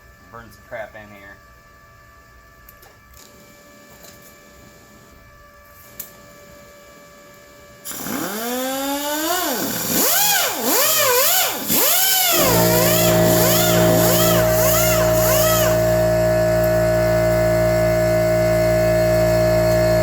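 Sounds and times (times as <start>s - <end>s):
welding arc crackling and buzzing: 7.9s - 20.0s.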